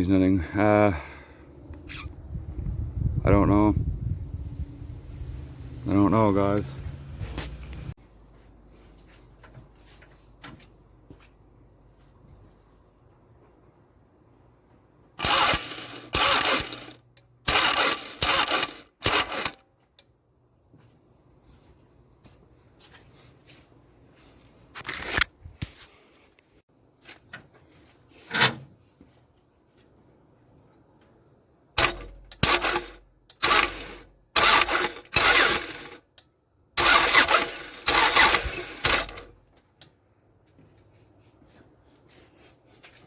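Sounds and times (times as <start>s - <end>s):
car engine cranking on starter: 15.2s - 19.6s, 31.8s - 36.0s, 36.8s - 39.3s.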